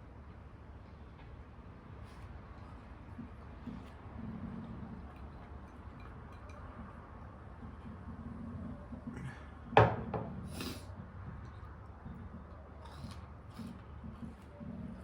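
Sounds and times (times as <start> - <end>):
faint eating sounds: 1.7 - 15.0
tableware knock: 9.8 - 10.4.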